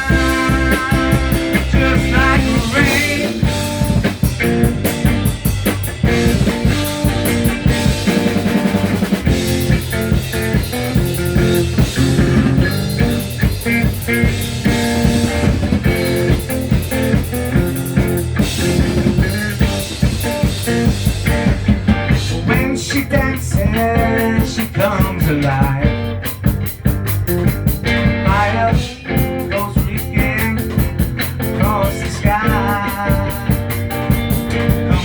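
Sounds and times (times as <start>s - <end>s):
bass guitar: 0.0s - 35.0s
drum kit with rimshots: 0.0s - 35.0s
electric guitar: 0.0s - 35.0s.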